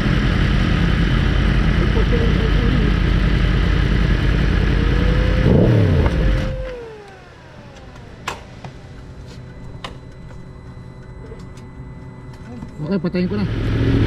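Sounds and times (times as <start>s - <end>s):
motorcycle engine revving: 0.0s - 9.3s, 13.2s - 14.0s
falling whine: 0.0s - 14.0s.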